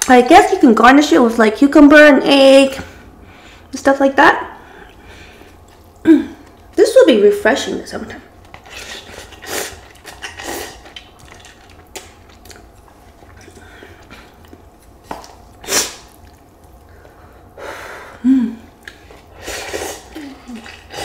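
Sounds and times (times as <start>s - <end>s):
person humming: 6.1s - 6.4s
person slurping and chewing: 8.5s - 14.6s.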